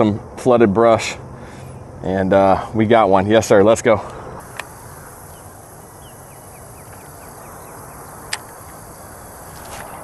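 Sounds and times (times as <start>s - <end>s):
sharp clicks: 4.1s - 4.8s, 8.2s - 8.8s
small bird chirping: 4.1s - 10.0s
outdoor background noise on water: 4.2s - 10.0s.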